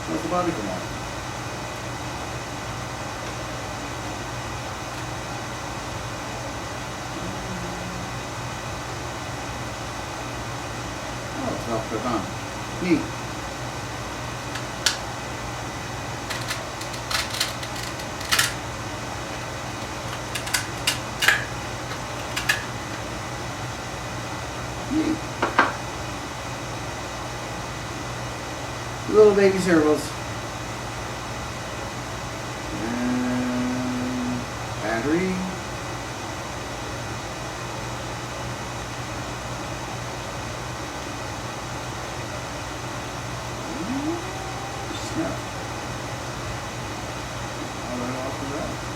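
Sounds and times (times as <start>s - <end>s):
steady low hum: 0.0s - 48.9s
toy truck and packaging handled: 16.2s - 18.6s, 19.3s - 22.7s.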